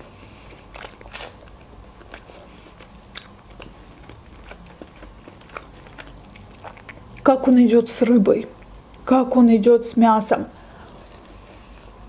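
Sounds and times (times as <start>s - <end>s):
person chewing chicken wings: 0.0s - 7.3s, 10.8s - 12.0s.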